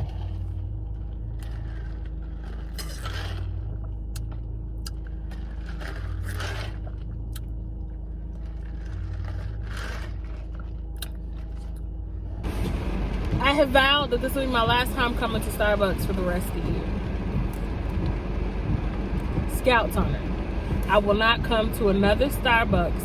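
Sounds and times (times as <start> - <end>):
rustling or scraping: 0.0 - 4.4, 5.0 - 13.4
car engine rumble in cabin: 0.0 - 23.0.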